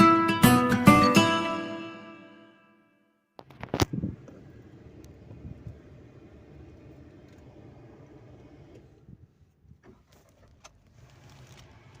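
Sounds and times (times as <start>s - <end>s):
faint car rumble: 3.4s - 12.0s.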